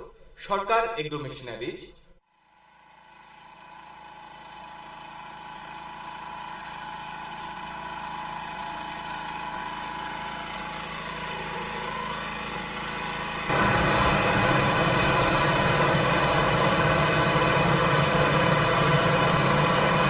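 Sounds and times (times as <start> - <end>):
farm machine engine running: 4.0 - 20.0.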